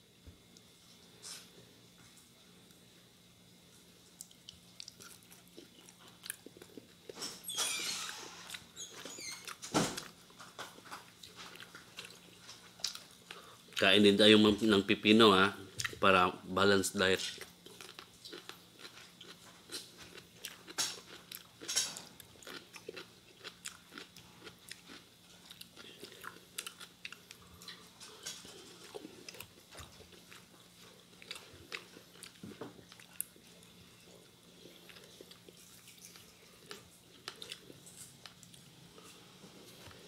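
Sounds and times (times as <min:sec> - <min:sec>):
faint steady hum: 0:00.0 - 0:40.0
person chewing crunchy food: 0:04.1 - 0:07.5, 0:08.1 - 0:13.9, 0:17.2 - 0:40.0.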